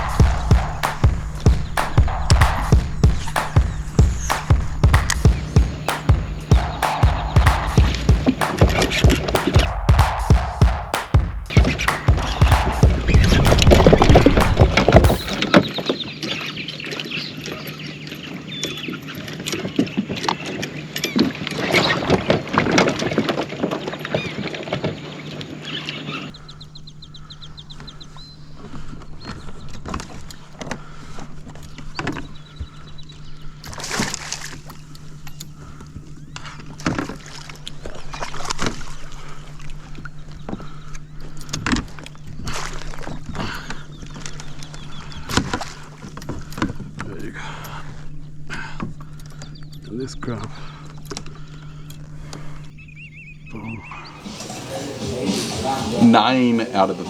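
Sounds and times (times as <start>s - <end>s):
steady low hum: 0.0s - 15.5s.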